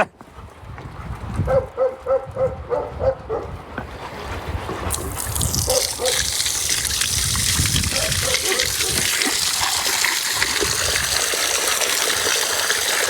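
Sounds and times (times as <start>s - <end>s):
water running and splashing: 4.9s - 13.0s.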